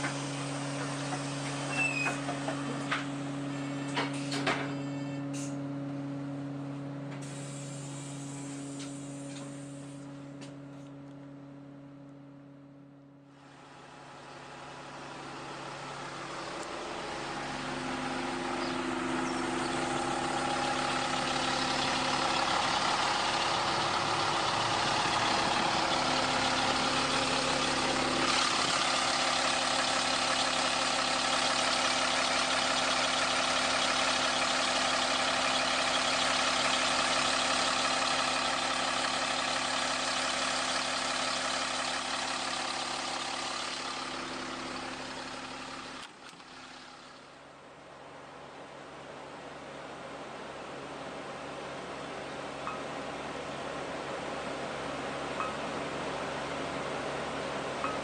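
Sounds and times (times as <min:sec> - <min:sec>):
bus diesel engine idling: 0:00.0 - 0:58.0.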